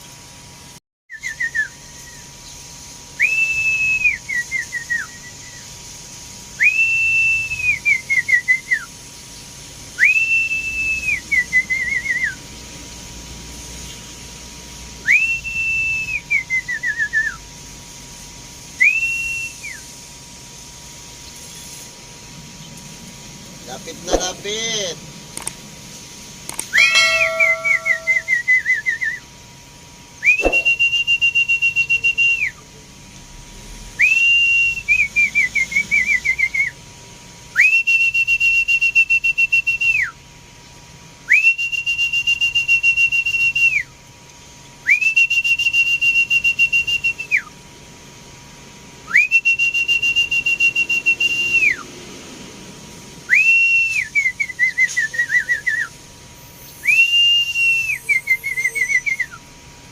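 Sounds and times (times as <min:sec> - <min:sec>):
high-pitched whistle: 0:26.7 - 0:29.2, 0:30.2 - 0:32.4, 0:53.3 - 0:59.4.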